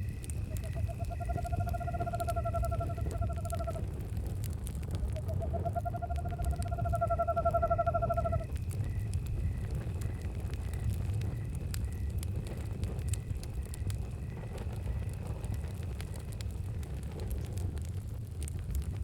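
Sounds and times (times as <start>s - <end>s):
crickets chirping: 0.0s - 17.1s
campfire crackling: 0.0s - 19.0s
owl trilling call: 5.2s - 8.5s.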